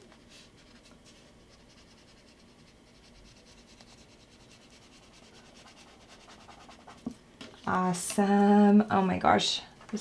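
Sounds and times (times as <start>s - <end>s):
marker scratching on paper: 1.5s - 7.1s.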